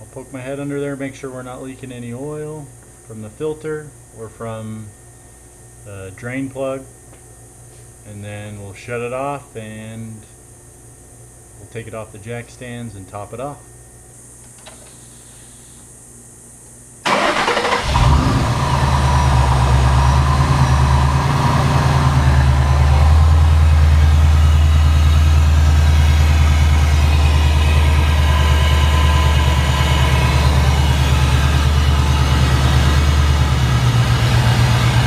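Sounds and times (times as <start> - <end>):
car engine starting and idling: 17.1 - 35.0.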